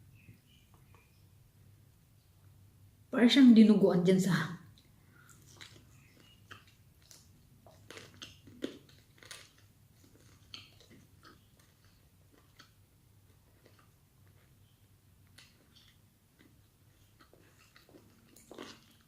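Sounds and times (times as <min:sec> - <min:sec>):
person chewing food: 0:04.8 - 0:19.0.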